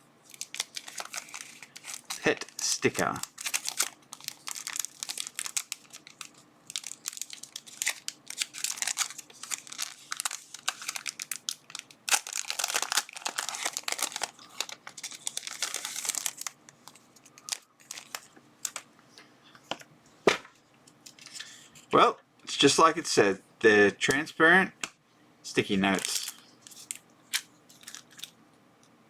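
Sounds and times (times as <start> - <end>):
plastic packaging crinkling: 0.2 - 18.9, 25.9 - 28.4.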